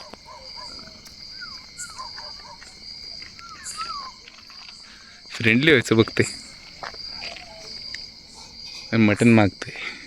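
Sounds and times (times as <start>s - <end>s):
crickets trilling: 0.0s - 10.0s
animal squeaky calls: 0.3s - 2.7s.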